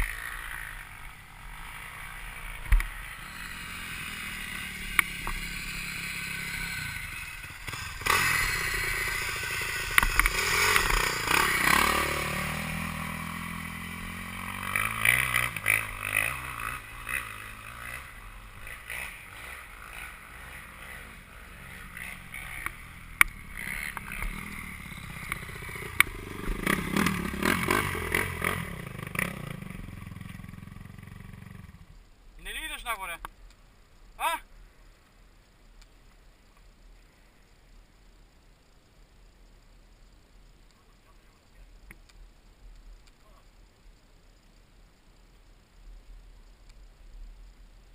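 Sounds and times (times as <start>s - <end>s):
motorcycles revving past: 0.0s - 32.0s.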